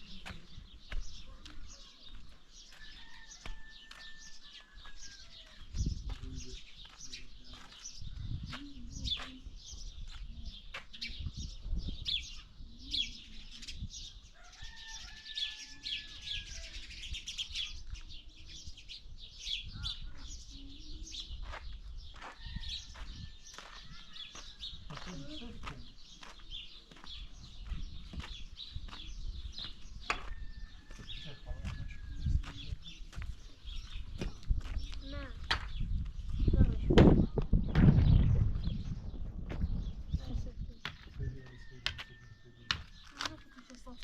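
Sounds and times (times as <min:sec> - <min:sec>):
small birds chirping: 0:00.0 - 0:44.0
low rumbles: 0:34.0 - 0:40.8.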